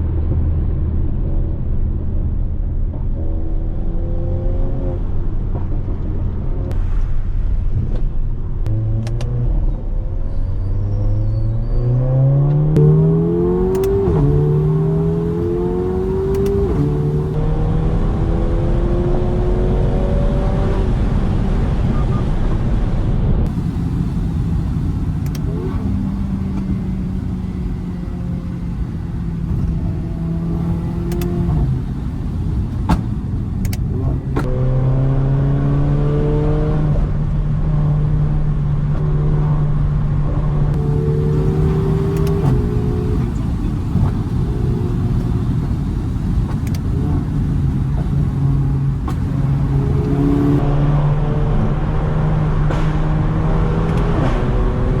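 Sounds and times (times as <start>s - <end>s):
car engine accelerating: 8.6s - 22.3s, 23.0s - 55.0s
exhaust pops: 23.4s - 34.5s, 40.8s - 50.6s.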